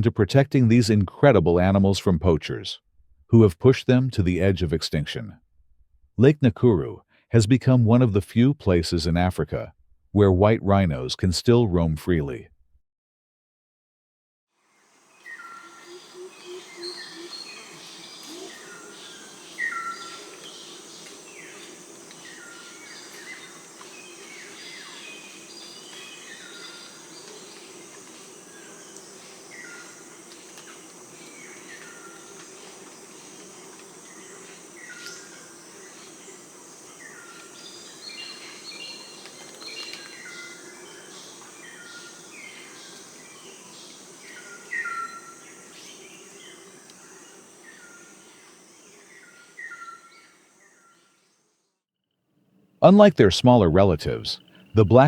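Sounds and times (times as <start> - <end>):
insects droning: 14.6 - 51.4
birds whistling calls: 15.2 - 27.7, 37.0 - 46.6.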